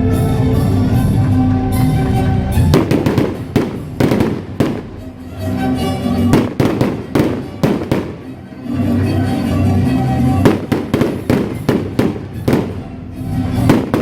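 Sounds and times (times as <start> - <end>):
music playing: 0.0 - 14.0
fireworks bangs: 2.6 - 5.2, 6.2 - 8.6, 10.4 - 14.0.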